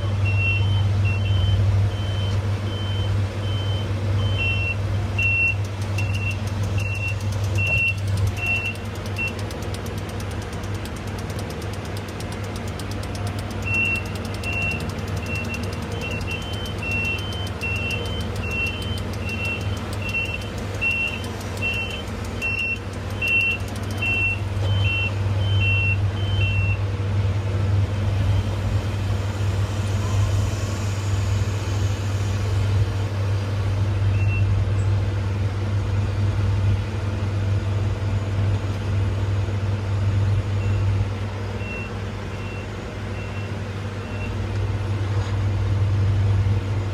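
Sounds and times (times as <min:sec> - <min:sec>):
backup alarms beeping: 0:00.0 - 0:26.8, 0:41.6 - 0:44.4
heavy diesel engine running: 0:00.0 - 0:46.9.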